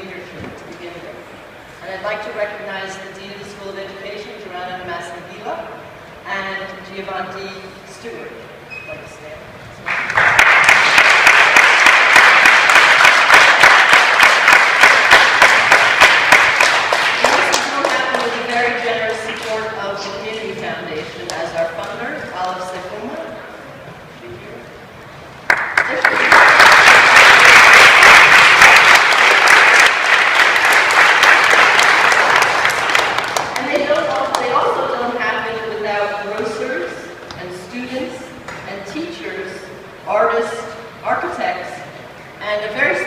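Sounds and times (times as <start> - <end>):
audience applauding: 9.8 - 18.4, 25.5 - 34.5.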